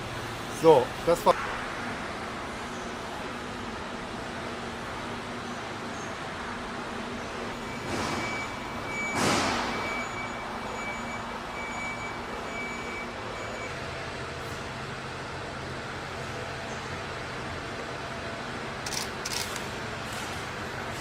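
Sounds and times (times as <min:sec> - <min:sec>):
factory hum: 0:00.0 - 0:21.0
high-pitched warning beeping: 0:07.5 - 0:13.9.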